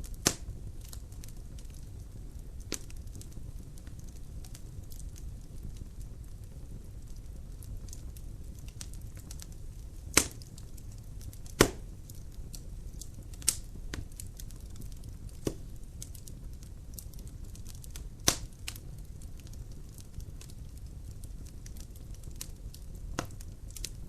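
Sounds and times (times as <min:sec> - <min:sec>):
logs crackling: 0:00.0 - 0:24.0
loud pops of fire: 0:00.0 - 0:24.0
low rumble of flames: 0:00.0 - 0:24.0
small ticks of fire: 0:00.0 - 0:24.0.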